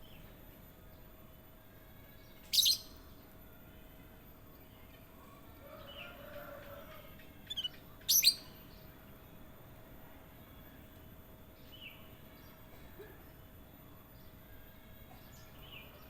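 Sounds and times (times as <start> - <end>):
songbird warbling and calling: 2.5 - 3.0, 7.0 - 8.6.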